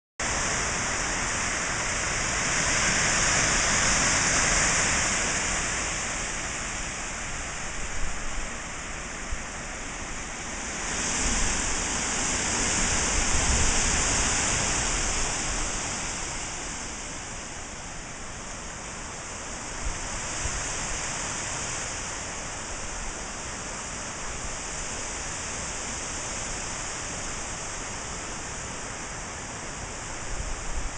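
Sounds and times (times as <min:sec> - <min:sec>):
strong gusty wind: 0:00.2 - 0:30.9
wind buffeting microphone: 0:10.6 - 0:17.8.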